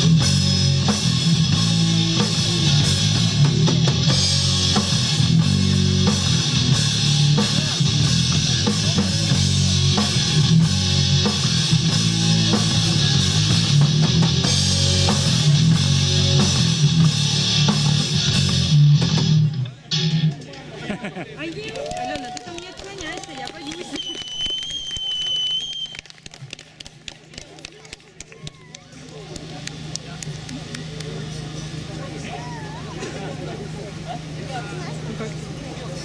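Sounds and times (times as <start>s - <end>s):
drum kit: 0.0s - 20.5s
guitars: 0.0s - 20.8s.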